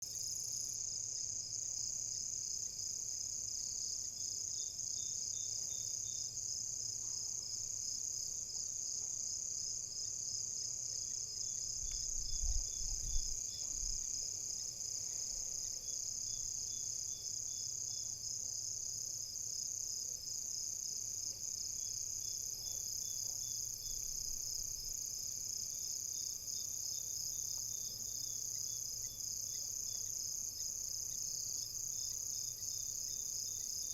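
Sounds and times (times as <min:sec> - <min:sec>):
crickets trilling: 0:21.6 - 0:33.9.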